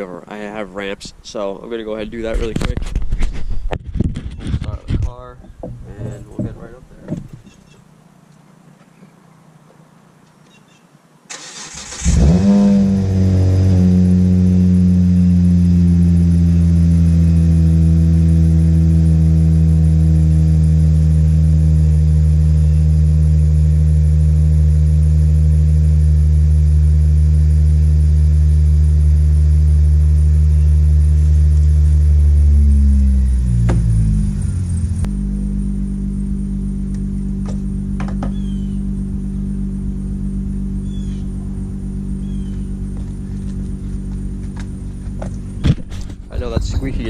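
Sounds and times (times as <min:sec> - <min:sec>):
car engine revving and idling: 0:05.1 - 0:07.6, 0:11.3 - 0:47.0
faint high squeak: 0:38.2 - 0:38.8.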